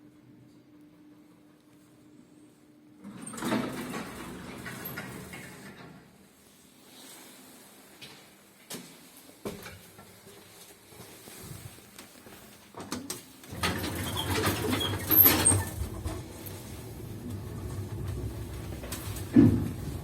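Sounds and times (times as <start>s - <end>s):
squeaks and rattling clicks: 13.5s - 16.3s
lift motor humming: 13.5s - 20.0s.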